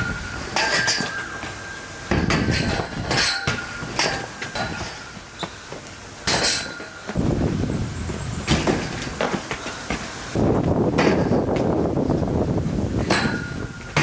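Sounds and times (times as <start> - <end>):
metallic clanks with ringing: 0.0 - 5.5, 13.1 - 14.0.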